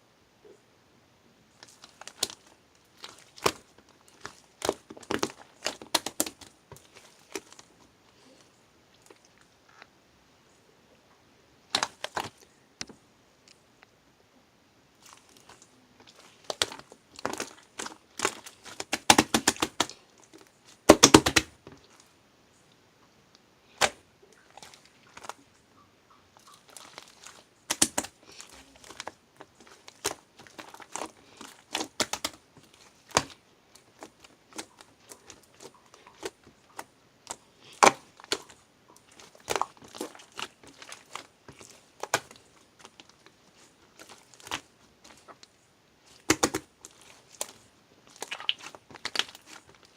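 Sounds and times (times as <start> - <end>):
crinkling: 1.5 - 10.0, 11.7 - 13.9, 14.9 - 49.9.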